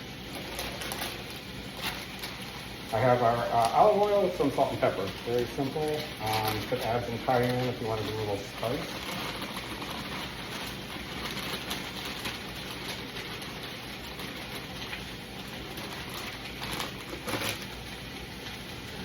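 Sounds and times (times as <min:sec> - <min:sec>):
onions sizzling in a pan: 0:00.0 - 0:19.0.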